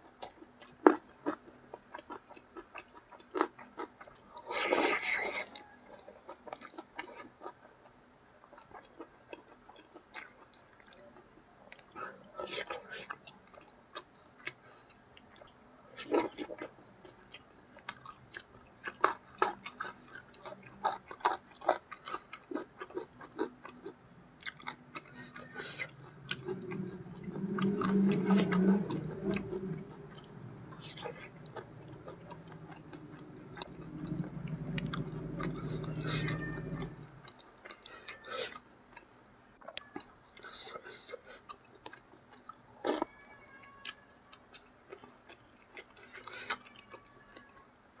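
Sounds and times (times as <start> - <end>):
chewing with mouth clicks: 0.2 - 43.2, 43.8 - 47.6
low hum: 25.2 - 37.4.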